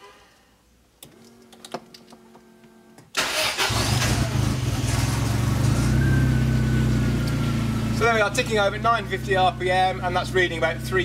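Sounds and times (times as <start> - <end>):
car engine cranking and starting: 3.1 - 11.0
car engine idling: 3.2 - 11.0.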